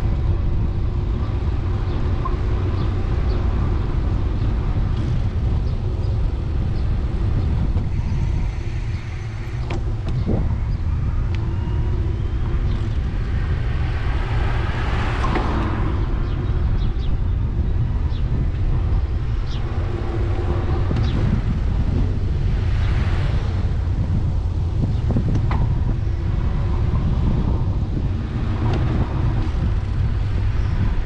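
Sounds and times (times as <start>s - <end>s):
bicycle tyre noise: 0.0s - 31.0s
wind rumble on microphone: 0.0s - 31.0s
car passing by: 11.5s - 18.2s.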